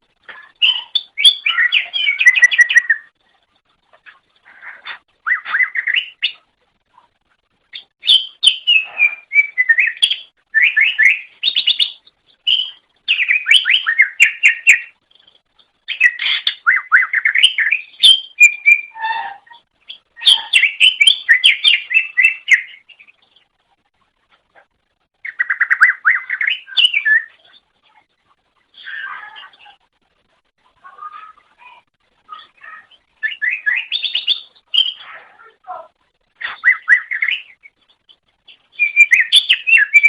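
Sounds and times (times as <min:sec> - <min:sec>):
bird singing trilled notes: 0:00.4 - 0:03.2, 0:04.1 - 0:06.5, 0:07.7 - 0:23.5, 0:25.2 - 0:28.0, 0:31.0 - 0:35.2, 0:36.4 - 0:40.0.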